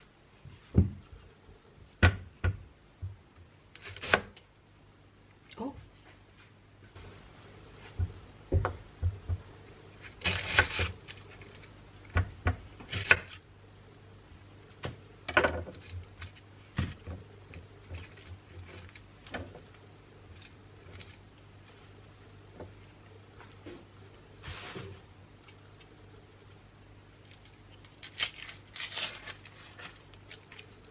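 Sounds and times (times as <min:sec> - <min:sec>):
faint low hum: 0:00.0 - 0:30.9.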